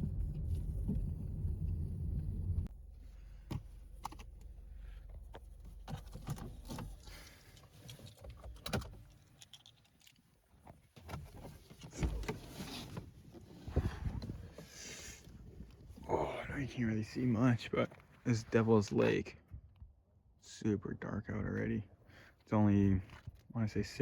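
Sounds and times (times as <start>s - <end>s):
car engine rumble: 0.0s - 9.2s, 11.0s - 17.6s.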